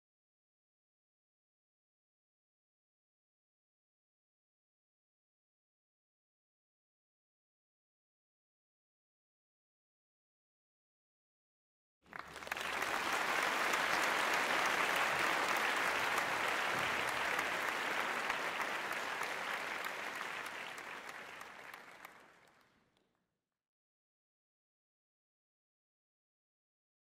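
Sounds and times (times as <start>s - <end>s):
crowd applauding: 12.1s - 22.8s.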